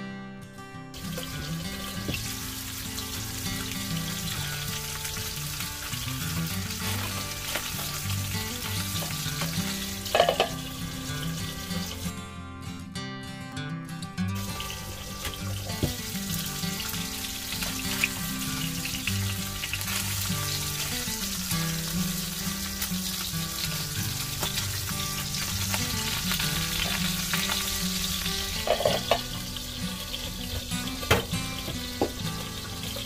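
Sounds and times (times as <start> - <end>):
fish sizzling in oil: 1.0 - 12.1, 14.4 - 33.0.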